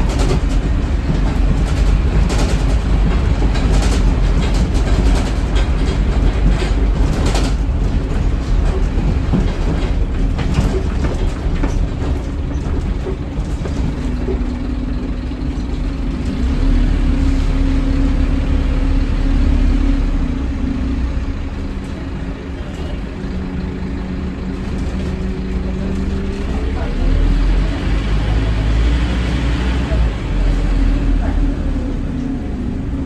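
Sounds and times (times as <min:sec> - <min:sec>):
bus diesel engine rumbling: 0:00.0 - 0:33.0.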